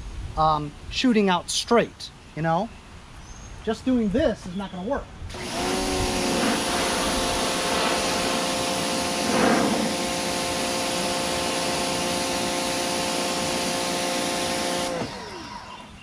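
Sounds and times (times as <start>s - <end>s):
water jet hissing: 5.3s - 15.4s
pressure washer motor whine: 5.3s - 16.0s.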